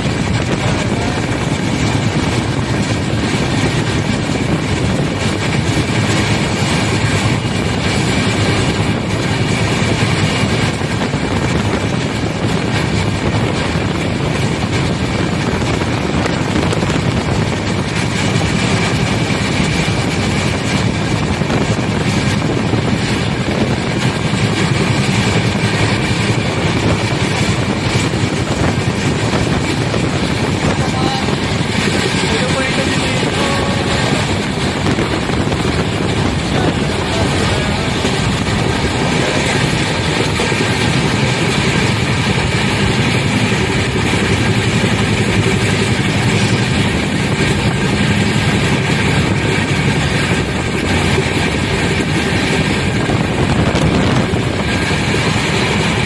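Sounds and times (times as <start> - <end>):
train wheels rushing on rails: 0.0 - 56.0
wind noise: 0.0 - 56.0.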